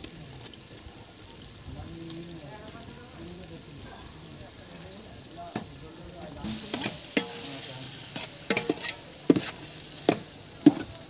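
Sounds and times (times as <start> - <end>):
onions sizzling in oil: 0.0 - 11.0
metal spatula scraping pot: 6.5 - 10.2.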